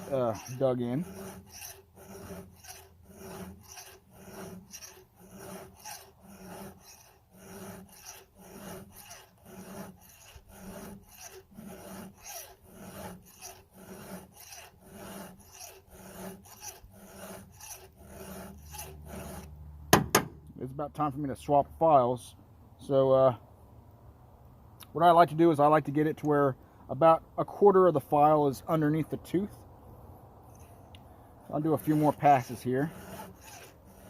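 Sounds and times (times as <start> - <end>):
file rasping on saw chain: 0.0 - 19.6, 30.5 - 34.0
sharp knock: 19.9 - 20.4.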